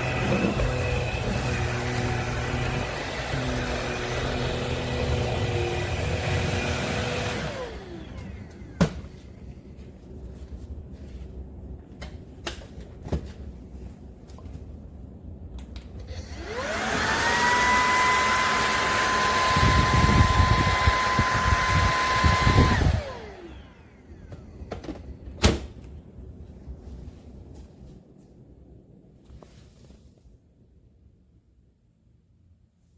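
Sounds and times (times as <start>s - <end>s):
vacuum motor whine: 0.0s - 9.6s, 16.0s - 25.0s.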